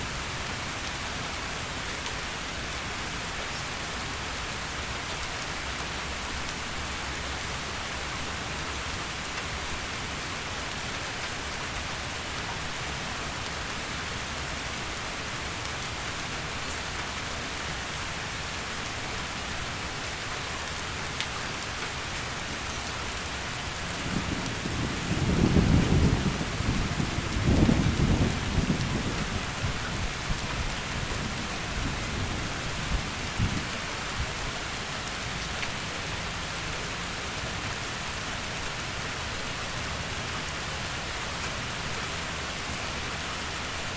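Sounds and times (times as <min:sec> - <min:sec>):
heavy rain: 0:00.0 - 0:43.9
thunder rumbling: 0:24.0 - 0:30.1.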